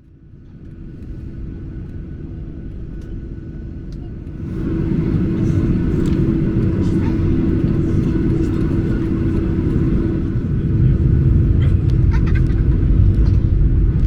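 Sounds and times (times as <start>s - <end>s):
aircraft engines low rumble: 0.0s - 14.0s
steady hum: 3.4s - 14.0s.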